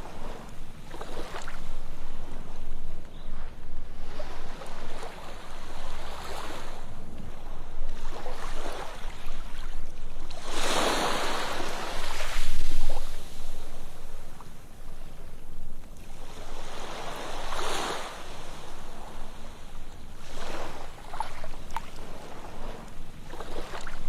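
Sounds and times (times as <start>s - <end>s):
ocean surf rushing: 10.4s - 14.7s.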